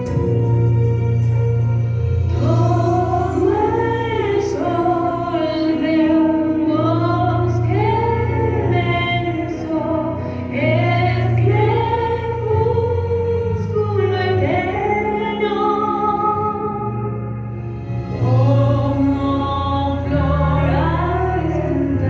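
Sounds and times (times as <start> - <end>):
women singing sustained notes: 0.0 - 22.0.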